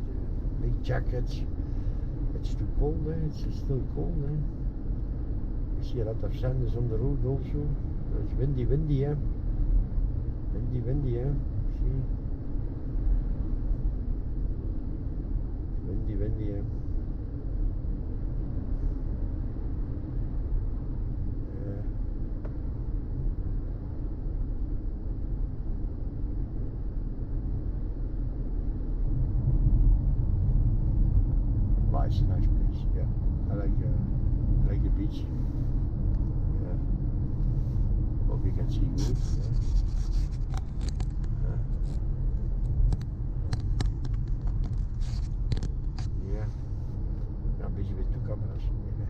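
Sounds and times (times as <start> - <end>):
car engine and tyres rumbling: 0.0 - 49.0.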